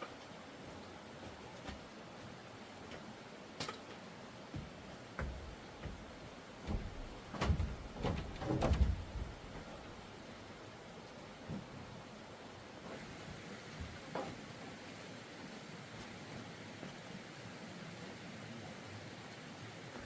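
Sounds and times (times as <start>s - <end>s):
dull knocks and thumps: 4.5s - 9.8s.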